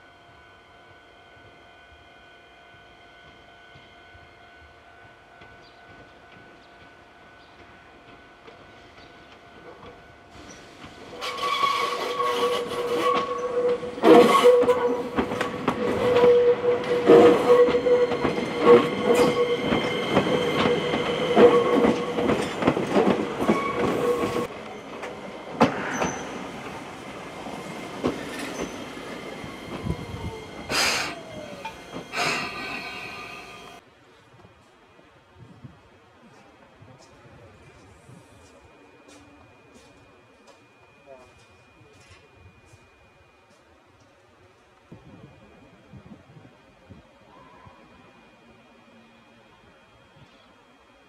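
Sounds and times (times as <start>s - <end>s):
train wheel squeal: 8.9s - 33.8s.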